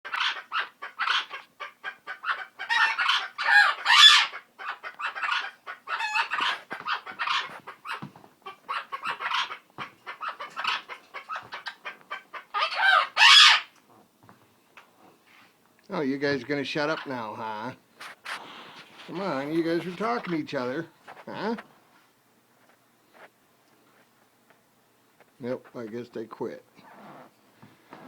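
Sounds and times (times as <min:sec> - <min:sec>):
chicken clucking: 0:00.1 - 0:13.8, 0:16.0 - 0:21.6
parrot calling: 0:00.1 - 0:13.8.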